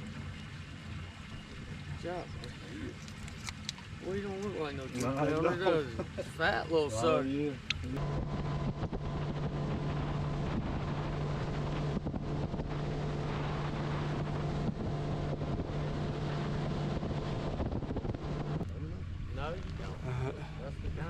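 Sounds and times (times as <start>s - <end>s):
engine humming: 0.0s - 21.0s
wind buffeting microphone: 7.9s - 21.0s.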